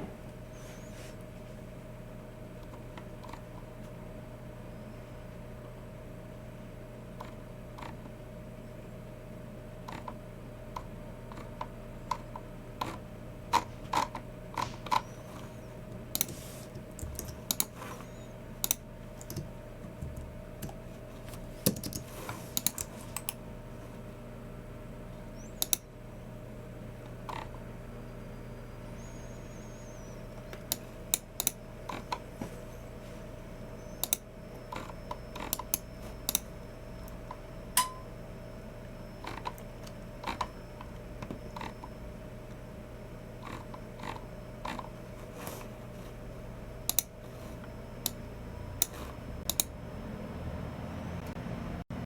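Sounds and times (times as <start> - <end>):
steady low hum: 0.0 - 52.0
mouse clicks: 25.6 - 25.8, 34.0 - 34.2.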